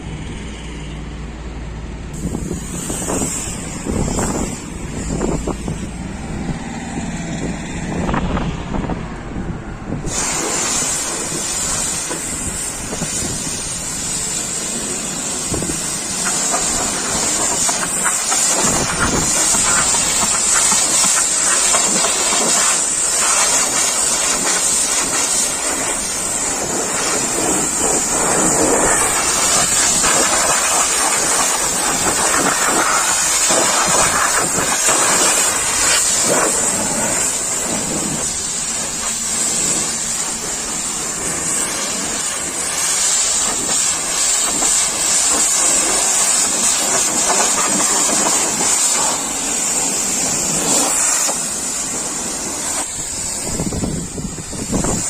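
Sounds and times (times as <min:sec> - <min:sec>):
pressure washer spraying water: 0:02.1 - 0:07.6, 0:10.0 - 0:55.0
high-pitched whine: 0:02.1 - 0:55.0.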